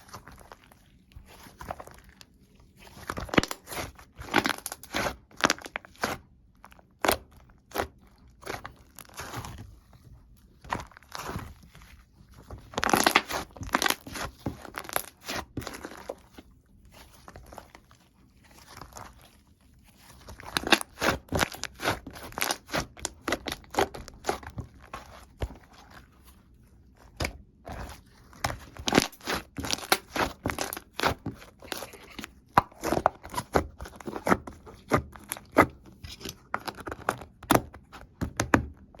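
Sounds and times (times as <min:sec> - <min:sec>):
slime crackling and popping: 0:12.7 - 0:16.2, 0:20.2 - 0:24.8, 0:28.4 - 0:31.9.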